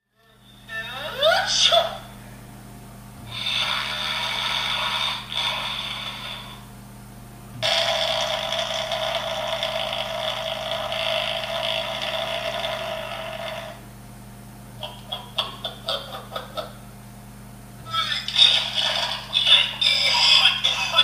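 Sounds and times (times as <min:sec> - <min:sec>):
electrical hum: 0:00.0 - 0:21.0
rasping sound effects from speaker: 0:03.2 - 0:06.6, 0:07.6 - 0:13.8.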